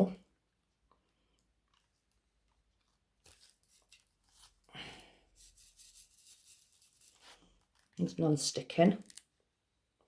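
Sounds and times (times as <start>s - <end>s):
plastic bag crinkling: 2.7s - 9.4s.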